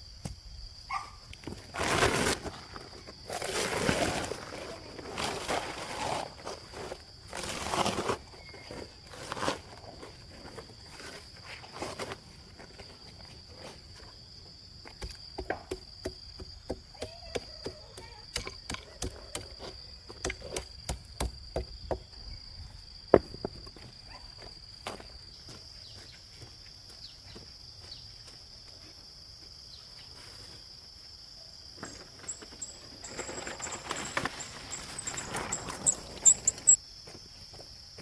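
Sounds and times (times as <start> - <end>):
high insect drone: 12.6 - 38.0
scraping sounds: 31.8 - 36.8.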